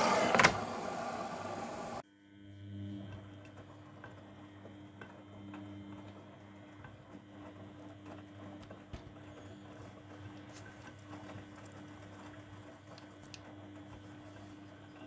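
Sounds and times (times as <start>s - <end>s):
washing machine humming: 0.0s - 2.0s.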